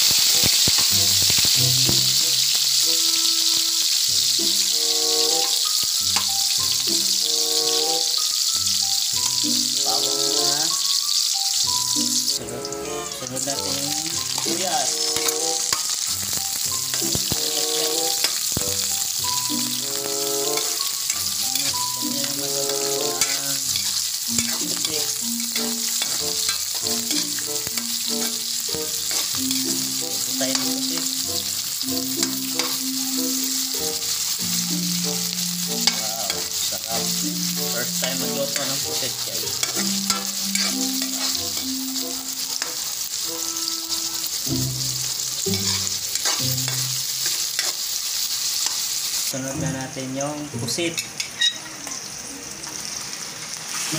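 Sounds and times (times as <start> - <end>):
onion sizzling in hot oil: 0.0 - 53.9
metal spatula scraping a wok: 14.2 - 32.8, 35.7 - 37.0, 37.8 - 49.1.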